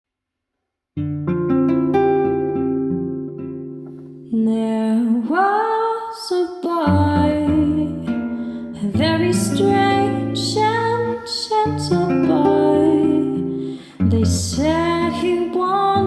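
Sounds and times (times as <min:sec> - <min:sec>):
acoustic guitar: 0:01.0 - 0:16.0
woman singing a jazz ballad: 0:04.3 - 0:08.1, 0:08.8 - 0:16.0.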